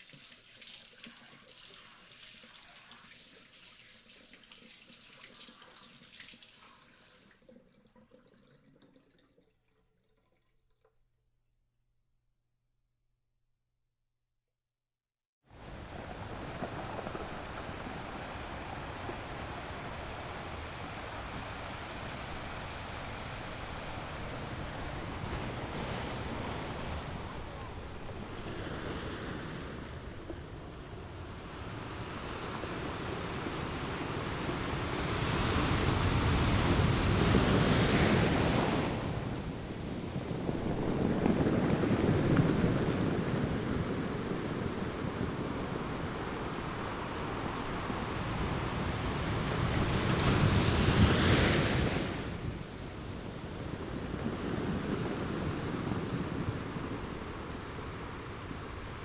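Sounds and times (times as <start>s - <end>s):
wind: 15.5s - 59.0s
waves washing in: 15.6s - 59.0s.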